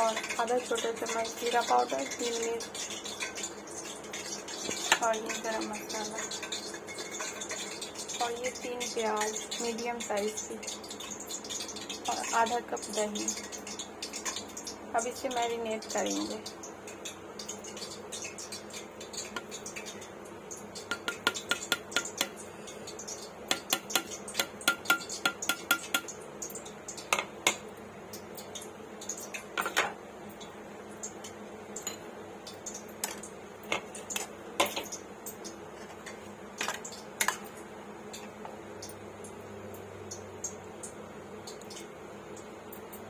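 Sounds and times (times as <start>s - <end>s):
spoon clinking and scraping bowl: 6.1s - 7.9s.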